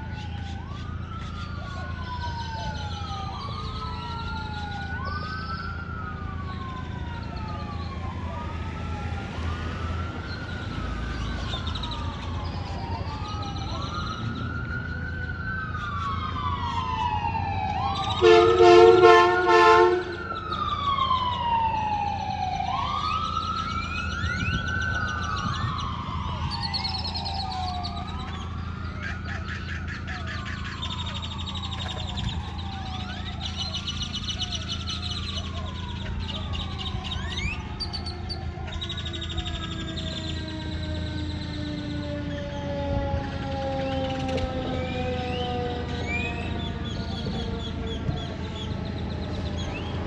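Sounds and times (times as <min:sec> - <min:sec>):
fire truck sirens wailing: 0:00.0 - 0:50.0
air horn blasts: 0:18.2 - 0:20.2.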